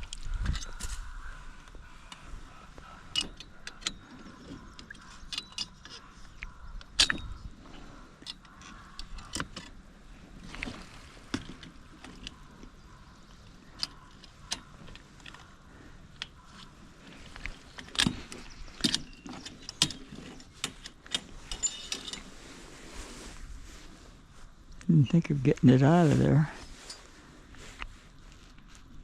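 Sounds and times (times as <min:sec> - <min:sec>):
metal parts clinking and knocking: 0:04.9 - 0:06.0, 0:18.8 - 0:22.3.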